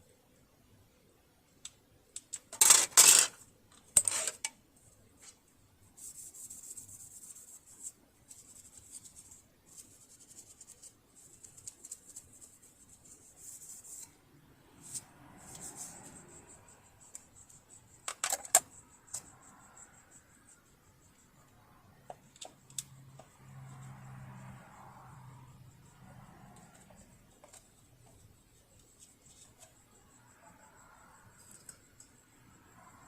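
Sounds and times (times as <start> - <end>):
scraping and rubbing: 2.6 - 3.4, 14.8 - 17.4.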